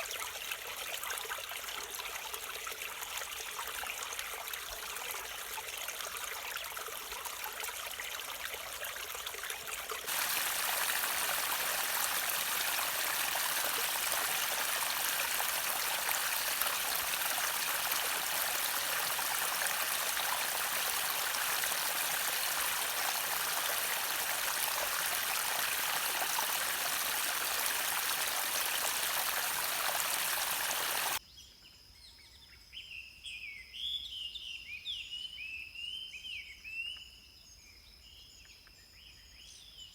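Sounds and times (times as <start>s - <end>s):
stream water flowing: 0.0s - 31.2s
birdsong: 10.1s - 31.2s.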